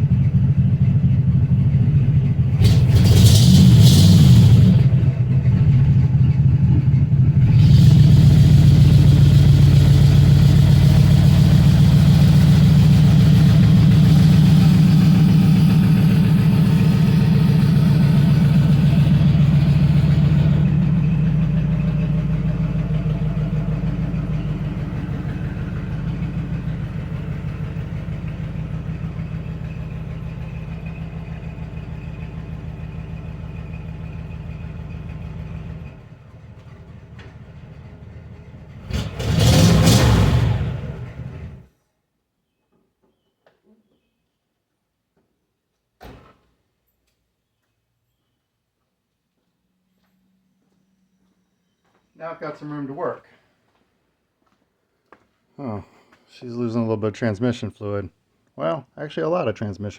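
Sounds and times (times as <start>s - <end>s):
car engine running loud: 0.0s - 41.7s.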